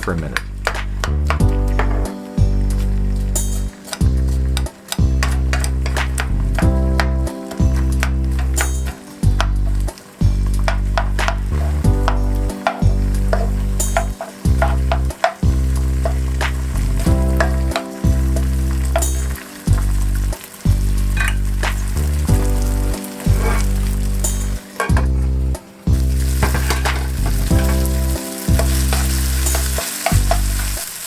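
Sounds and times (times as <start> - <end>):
background music: 0.0 - 31.0
onion sizzling in frying pan: 0.0 - 31.0
utensil scraping pan: 7.8 - 17.9, 23.0 - 25.3, 26.2 - 30.9.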